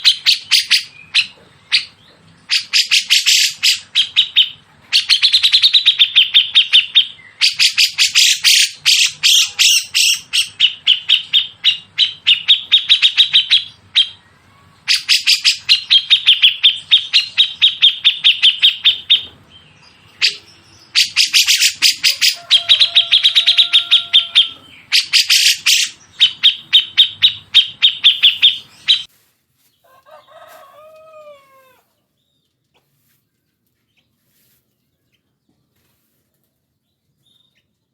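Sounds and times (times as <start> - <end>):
songbird harsh chipping song: 0.0 - 29.1.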